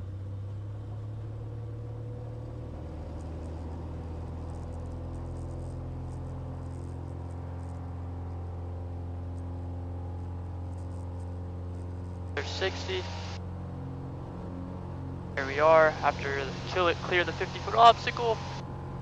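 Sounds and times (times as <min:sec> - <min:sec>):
airplane engine and propeller drone: 0:00.0 - 0:19.0.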